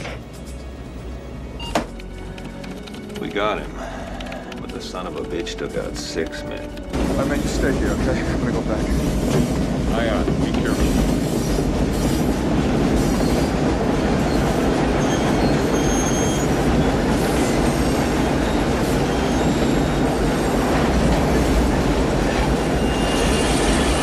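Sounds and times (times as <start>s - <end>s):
train wheels clattering on rails: 1.9s - 24.0s.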